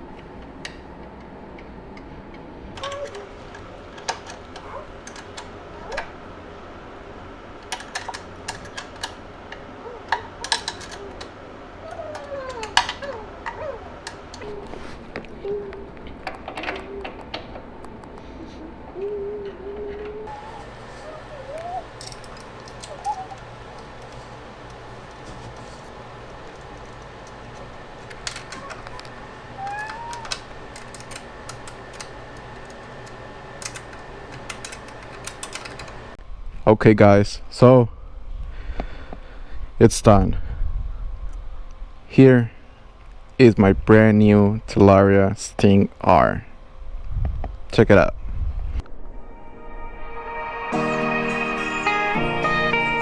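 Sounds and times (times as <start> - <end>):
steady low hum: 0.0 - 53.0
tools and metal parts clicking: 2.3 - 6.2, 7.6 - 14.8, 16.0 - 17.6, 20.0 - 36.2
short squeaks: 19.8 - 24.4, 27.4 - 30.8.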